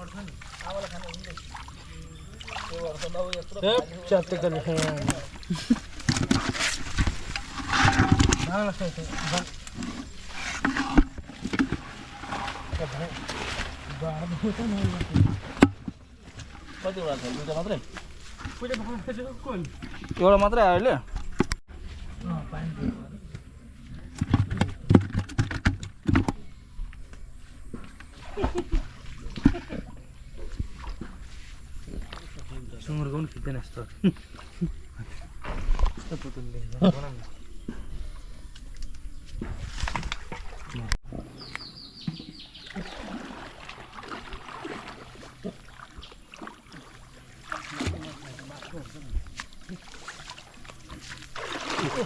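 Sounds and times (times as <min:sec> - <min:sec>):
water splashing and sloshing: 0:00.0 - 0:52.0
sharp knocks and clatters: 0:06.0 - 0:13.4.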